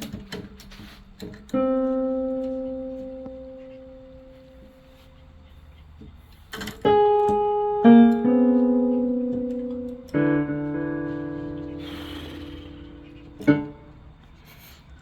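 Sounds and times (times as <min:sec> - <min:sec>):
piano notes ringing: 0:01.5 - 0:05.5, 0:06.8 - 0:14.3.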